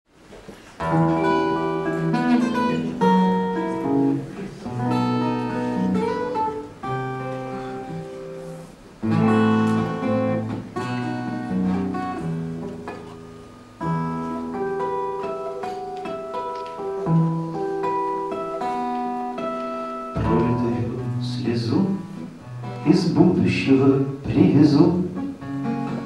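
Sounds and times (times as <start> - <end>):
acoustic guitar chords: 0.8 - 26.0.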